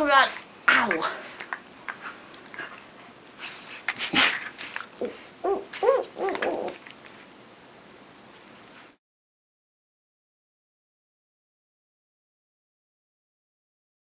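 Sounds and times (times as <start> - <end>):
dog whining: 5.0 - 6.8.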